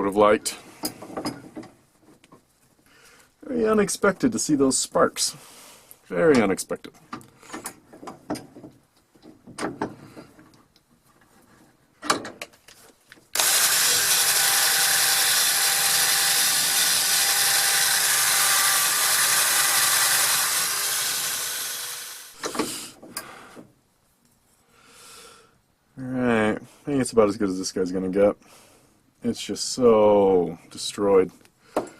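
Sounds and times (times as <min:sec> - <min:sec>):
clicks and knocks of drill bit: 0:13.3 - 0:21.5
drill wire wheel scouring steel: 0:13.4 - 0:22.4.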